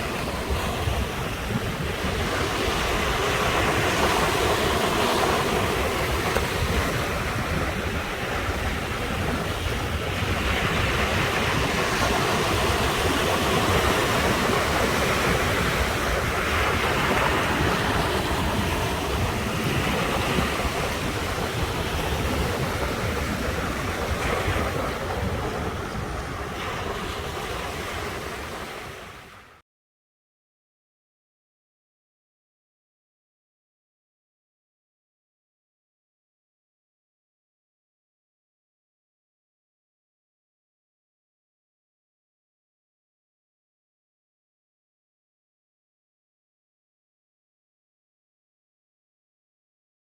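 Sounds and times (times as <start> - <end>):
sea waves washing ashore: 0.0 - 29.6.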